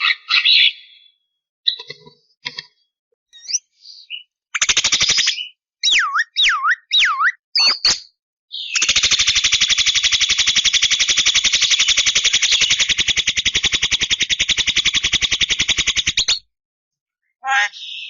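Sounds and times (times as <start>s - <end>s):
bird harsh rattling call: 8.7s - 16.4s.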